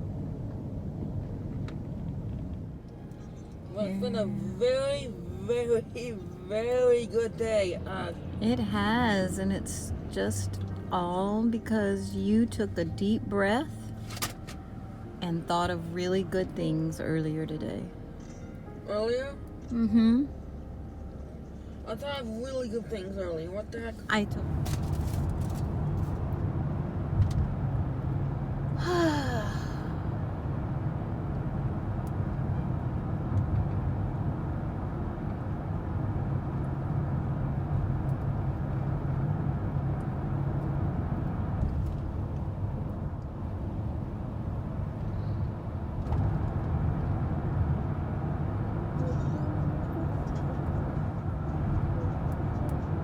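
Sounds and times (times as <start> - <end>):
road and engine rumble inside car: 0.0 - 53.0.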